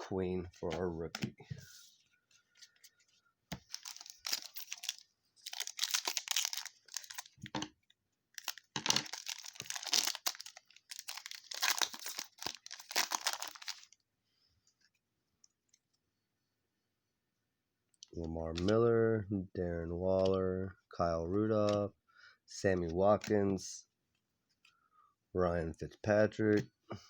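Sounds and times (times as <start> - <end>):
plastic wrapper tearing and crinkling: 3.6 - 7.6, 8.3 - 14.0.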